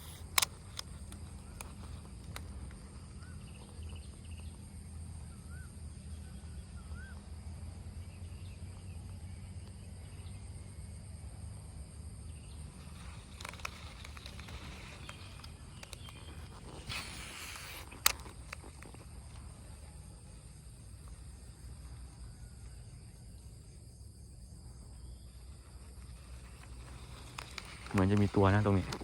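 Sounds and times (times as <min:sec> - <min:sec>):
sharp clicks: 0:00.0 - 0:02.9, 0:12.9 - 0:19.7, 0:26.2 - 0:29.0
high insect drone: 0:00.0 - 0:29.0
small bird chirping: 0:12.2 - 0:29.0.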